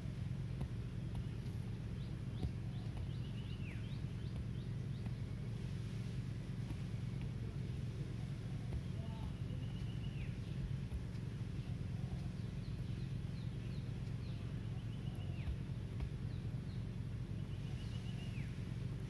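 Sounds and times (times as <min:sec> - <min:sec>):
steady low hum: 0:00.0 - 0:19.0
falling bird chirps: 0:01.2 - 0:05.6, 0:08.8 - 0:18.8
bird whistle: 0:17.4 - 0:18.6.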